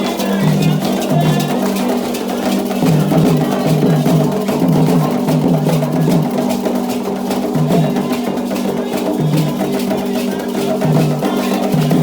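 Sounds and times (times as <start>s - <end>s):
hand drums: 0.0s - 12.0s
voices singing: 0.0s - 12.0s.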